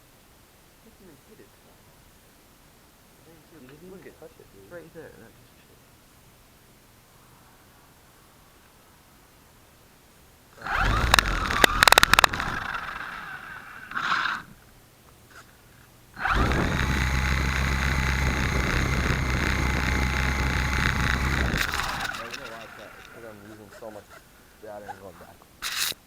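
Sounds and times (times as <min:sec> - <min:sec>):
loud burst with sharp clicks: 0:10.6 - 0:14.4, 0:16.2 - 0:23.6
electric motor and rotor: 0:10.6 - 0:14.6, 0:16.2 - 0:26.0.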